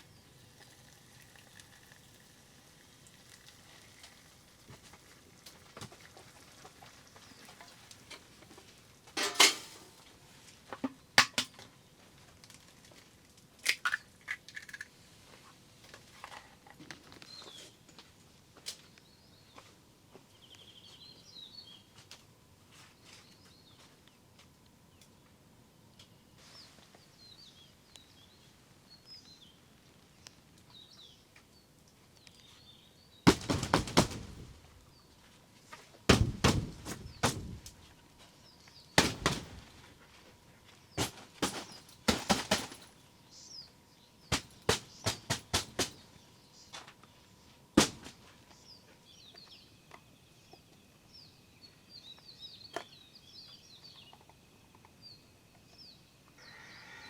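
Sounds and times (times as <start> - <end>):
sharp knocks and clatters: 9.2 - 9.8, 10.8 - 11.6, 33.3 - 34.6, 36.1 - 37.8, 39.0 - 39.9, 41.0 - 42.9, 44.3 - 46.0, 47.8 - 48.2.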